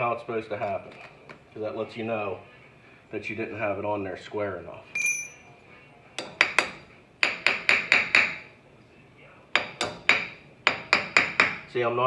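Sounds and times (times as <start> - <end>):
hammer tapping metal chisel: 5.0 - 5.5, 6.2 - 8.5, 9.6 - 11.7.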